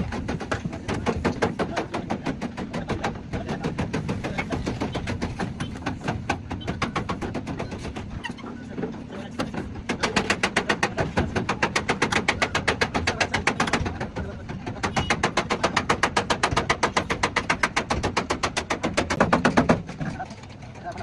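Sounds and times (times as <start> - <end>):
hammer tapping on steel panel: 9.4 - 19.9.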